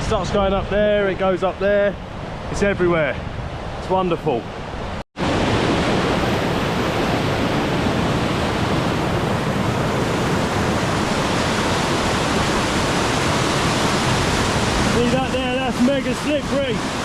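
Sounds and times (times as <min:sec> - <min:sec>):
waterfall rushing over rock: 0:05.2 - 0:17.0.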